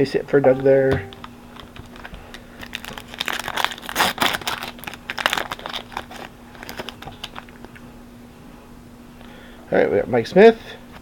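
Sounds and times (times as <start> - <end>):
foil wrapper crinkling and tearing: 1.6 - 7.6
faint steady hum: 4.8 - 11.0.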